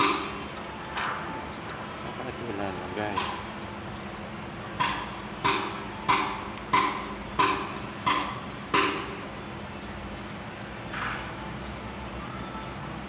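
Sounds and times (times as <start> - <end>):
tool tapping on metal: 0.0 - 2.2.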